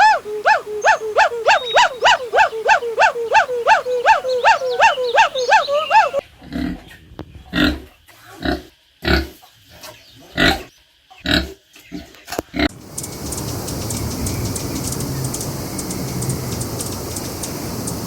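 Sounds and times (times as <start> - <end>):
high pitched animal calls: 0.0 - 6.2.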